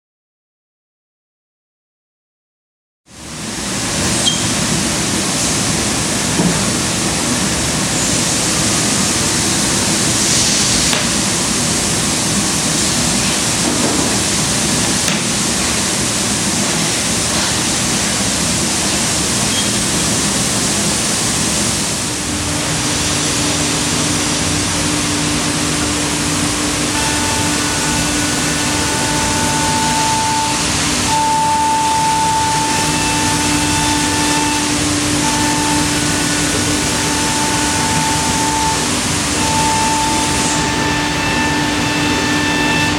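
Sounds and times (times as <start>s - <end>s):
steady machine whine: 3.2s - 42.9s
router machining wood: 24.5s - 42.9s.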